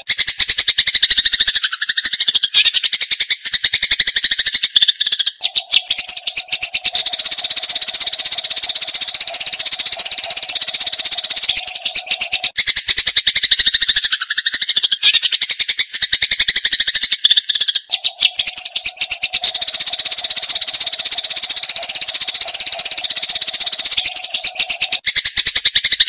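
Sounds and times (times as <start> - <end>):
sparrows chirping rapidly: 0.0 - 26.0.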